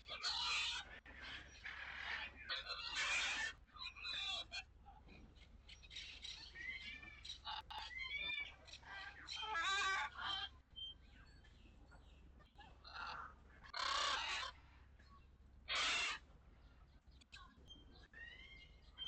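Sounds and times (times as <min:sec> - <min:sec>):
birds chirping and warbling: 0:00.0 - 0:19.0
harsh bird calls: 0:00.0 - 0:19.0.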